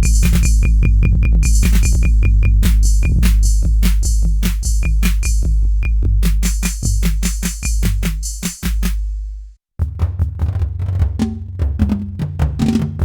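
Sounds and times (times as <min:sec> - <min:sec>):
hissy hi-hat hits: 0:00.0 - 0:09.4
drum synthesizer rhythm: 0:00.0 - 0:10.4
booming bass drum: 0:00.0 - 0:13.0.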